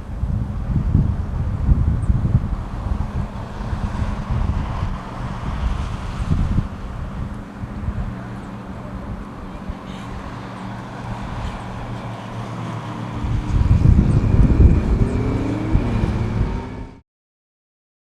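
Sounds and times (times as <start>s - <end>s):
wind buffeting microphone: 0.0s - 17.0s
jet engines whining: 2.4s - 17.0s
low rumble with rising tones: 10.6s - 17.0s.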